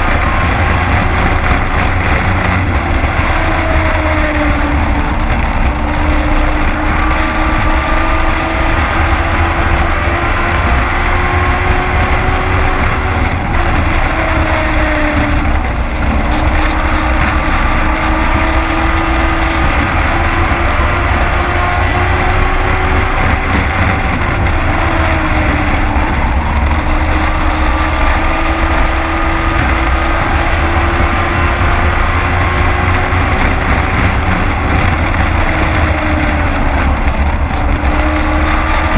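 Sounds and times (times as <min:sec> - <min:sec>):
road and wind noise: 0:00.0 - 0:38.9
truck engine at high revs: 0:00.0 - 0:38.9.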